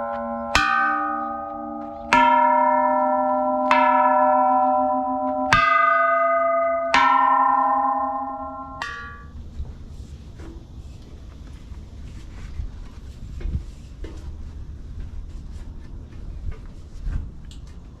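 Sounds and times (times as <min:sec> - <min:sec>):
bells struck and ringing: 0:00.0 - 0:09.4.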